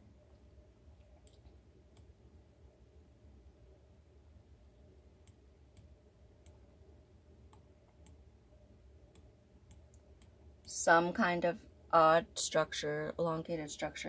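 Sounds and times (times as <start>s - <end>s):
faint low hum: 0.0s - 14.0s
computer mouse clicks: 7.5s - 8.2s, 9.1s - 10.4s.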